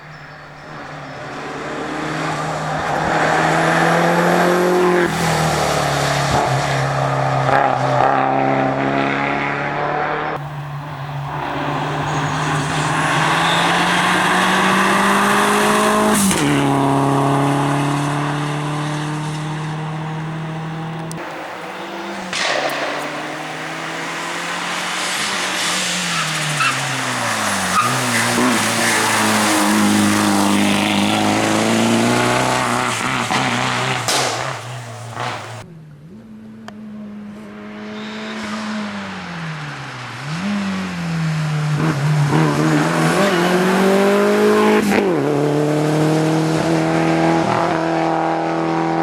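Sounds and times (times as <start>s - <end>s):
rally car engine accelerating: 0.8s - 49.0s
exhaust crack: 5.1s - 35.7s.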